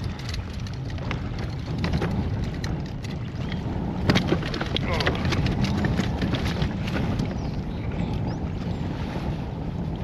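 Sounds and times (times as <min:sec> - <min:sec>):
small clicks and knocks: 0:00.0 - 0:07.1
water lapping at a hull: 0:00.0 - 0:10.0
wind buffeting microphone: 0:00.0 - 0:10.0.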